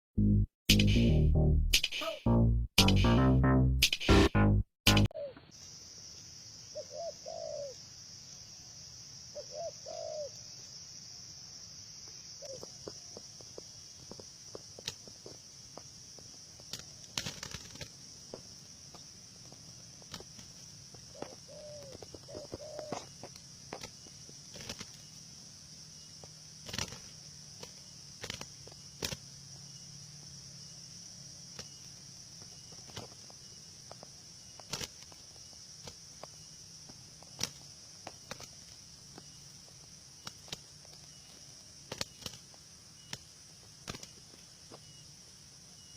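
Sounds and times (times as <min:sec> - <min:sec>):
high insect drone: 0:05.2 - 0:45.9
doves cooing: 0:06.8 - 0:07.8, 0:09.4 - 0:10.4, 0:20.1 - 0:23.9
wing flaps and knocks: 0:16.6 - 0:19.0, 0:20.0 - 0:25.1, 0:26.6 - 0:29.2, 0:34.6 - 0:36.3, 0:37.2 - 0:38.7, 0:41.9 - 0:44.4.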